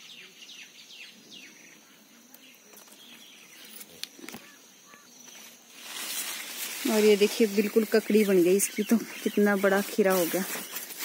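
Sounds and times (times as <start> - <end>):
bird chirping: 0.0 - 5.5, 7.6 - 11.0
leaves brushing phone clicks: 5.2 - 11.0.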